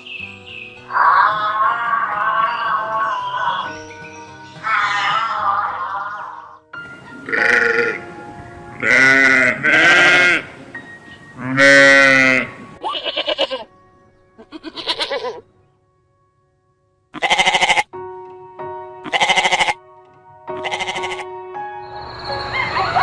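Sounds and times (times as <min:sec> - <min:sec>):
soft background music: 0:00.0 - 0:23.0
livestock bleating: 0:00.9 - 0:03.7, 0:07.2 - 0:08.0, 0:08.8 - 0:10.6, 0:11.4 - 0:13.7, 0:14.4 - 0:15.4, 0:17.1 - 0:18.0, 0:19.0 - 0:19.8, 0:20.5 - 0:21.4.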